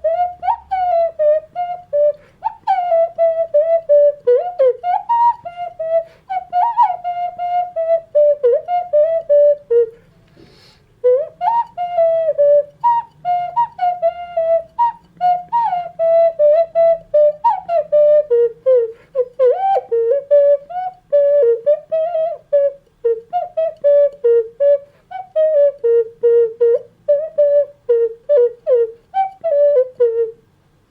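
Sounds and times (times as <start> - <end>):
ocarina melody: 0.0 - 30.9.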